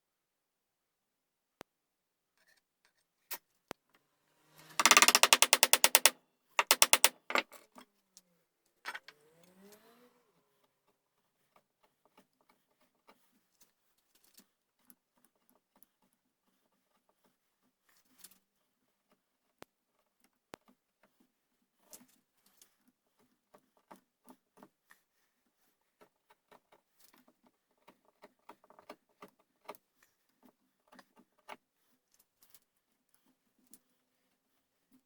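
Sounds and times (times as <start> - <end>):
hand tools working wood: 4.5 - 7.4.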